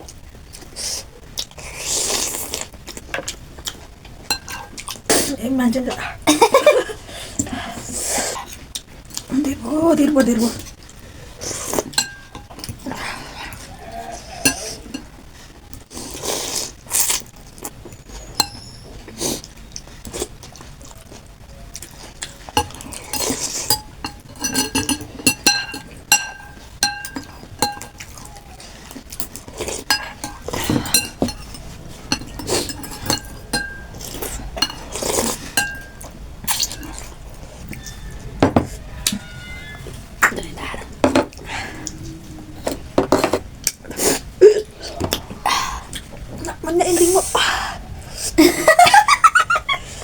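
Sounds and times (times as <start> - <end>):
slurping and eating: 0.5 - 5.4, 10.4 - 48.4
utensils clinking against bowl: 4.3 - 4.8, 11.8 - 12.8, 14.4 - 15.1, 18.3 - 18.8, 22.5 - 28.3, 29.2 - 37.1.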